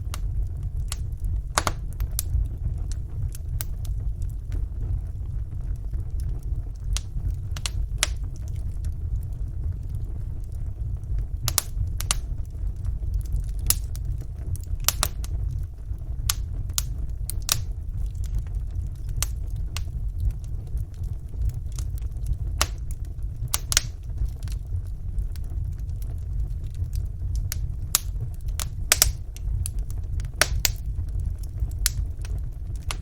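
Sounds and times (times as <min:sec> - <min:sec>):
fire crackling and popping: 0:00.0 - 0:33.0
low rumble of flames: 0:00.0 - 0:33.0.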